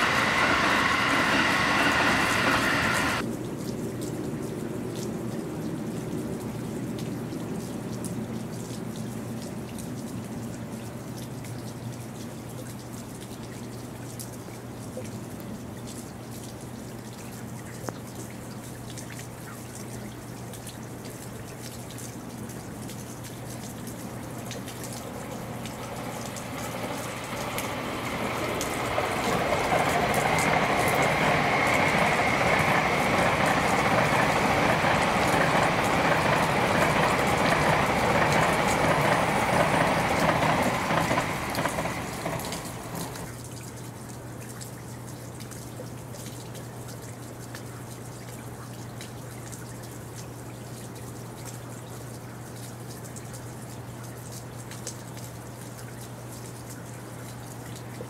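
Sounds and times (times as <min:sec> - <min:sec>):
high whine: 0:00.0 - 0:03.2, 0:24.9 - 0:43.3
train passing at speed: 0:00.0 - 0:03.2, 0:23.9 - 0:43.3.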